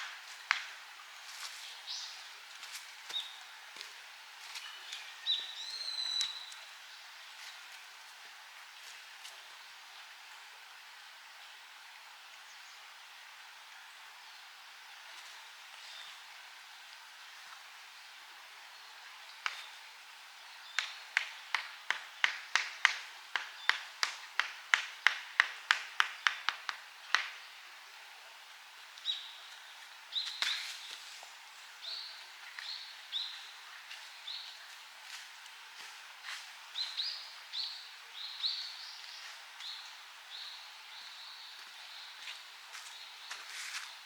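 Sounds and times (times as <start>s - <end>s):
sharp knocks on wood: 20.8s - 27.4s.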